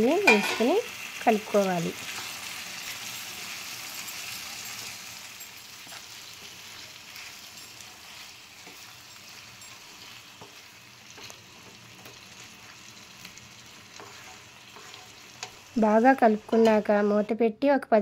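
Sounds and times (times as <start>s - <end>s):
meat sizzling in a frying pan: 0.0s - 17.3s
wooden spatula scraping a pan: 5.8s - 17.2s.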